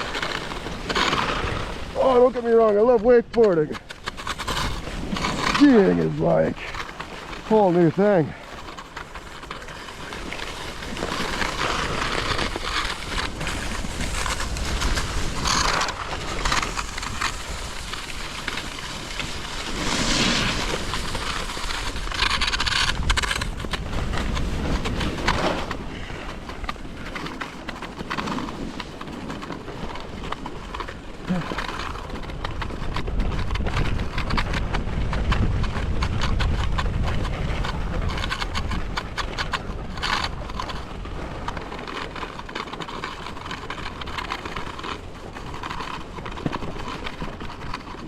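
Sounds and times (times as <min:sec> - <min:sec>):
ski scraping over snow: 0:00.0 - 0:48.0
wind noise on microphone: 0:10.8 - 0:27.2, 0:31.3 - 0:41.8.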